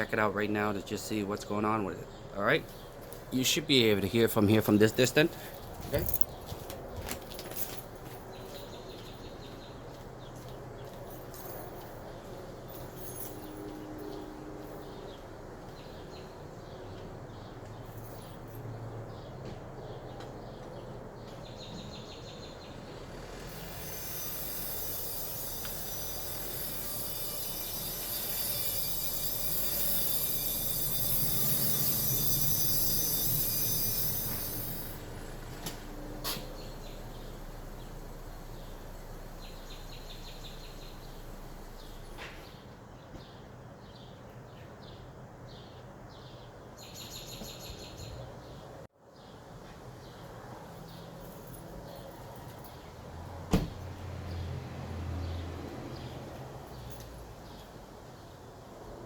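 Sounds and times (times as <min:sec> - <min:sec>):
car brakes squealing: 0:22.7 - 0:42.3
faint chirping: 0:36.4 - 0:42.6.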